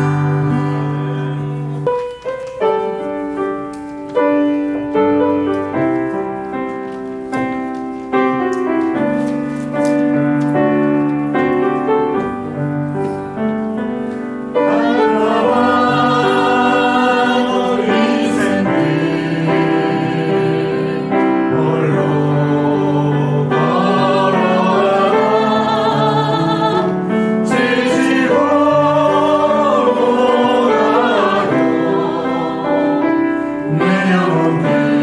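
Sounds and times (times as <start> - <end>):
people singing: 0.0 - 1.8, 14.5 - 35.0
piano playing slow worship song: 0.0 - 35.0.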